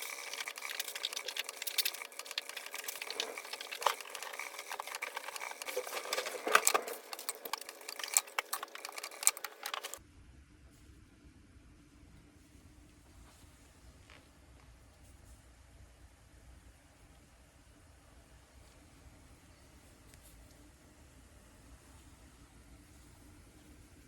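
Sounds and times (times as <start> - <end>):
sewing machine stitching: 0.0 - 10.0.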